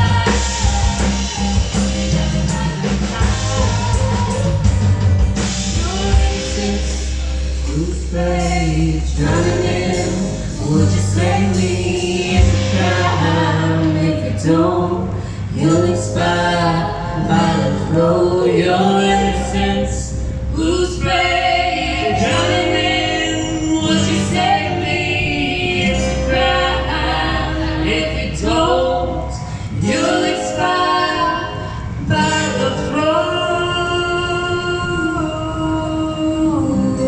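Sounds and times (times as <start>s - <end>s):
drum hits: 0.0s - 7.8s, 9.2s - 14.0s
bass line: 0.0s - 37.0s.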